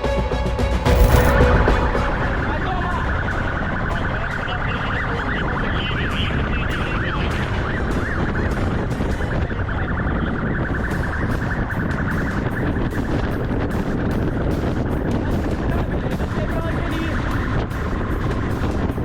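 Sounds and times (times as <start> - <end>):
loud hit: 0.8 - 5.4
police siren: 0.9 - 13.8.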